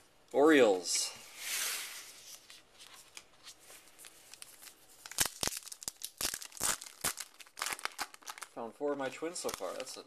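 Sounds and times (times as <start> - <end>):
wrapper crinkling and tearing: 3.9 - 8.6, 9.2 - 10.0.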